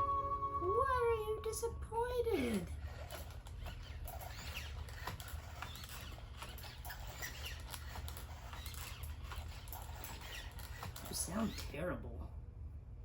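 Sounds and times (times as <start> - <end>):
grinding robot joints: 2.4 - 11.8
robot servo motors whirring: 2.4 - 11.8
short squeaks: 2.7 - 11.8.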